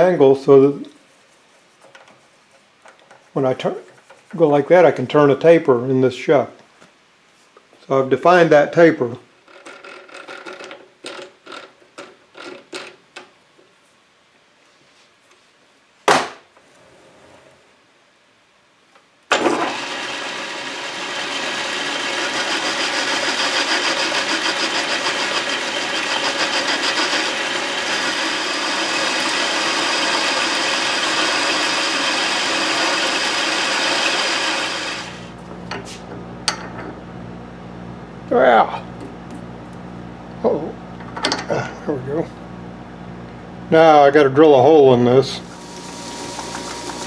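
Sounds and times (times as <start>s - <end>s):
lathe cutting metal: 19.3s - 35.3s, 45.4s - 47.0s
lathe motor humming: 19.4s - 36.3s, 45.4s - 47.0s.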